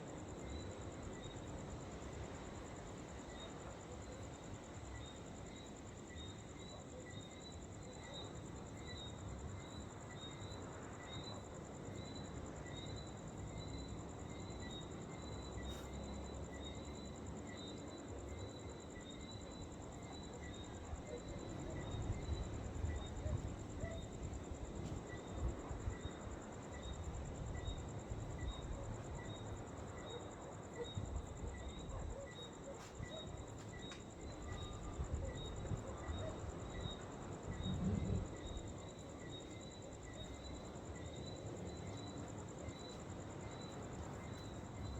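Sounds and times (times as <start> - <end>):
crickets chirping: 0.0 - 44.9
wind rumble on microphone: 34.6 - 38.7.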